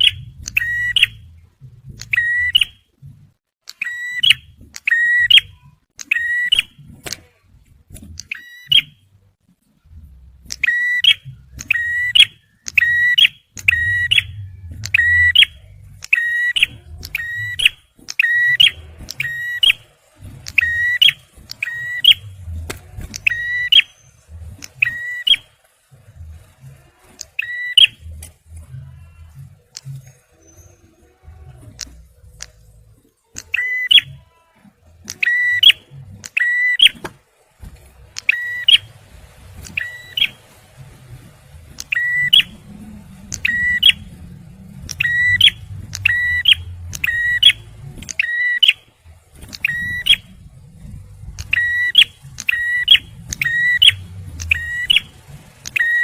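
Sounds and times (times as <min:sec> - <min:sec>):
bird calling sharp high notes: 0:10.5 - 0:25.6, 0:39.6 - 0:40.6, 0:41.8 - 0:44.2, 0:44.9 - 0:48.9, 0:51.4 - 0:56.0.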